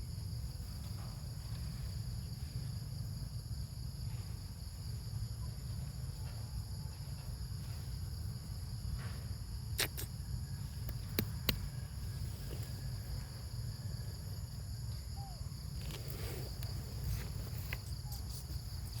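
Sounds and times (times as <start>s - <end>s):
insect chorus: 0.0s - 19.0s.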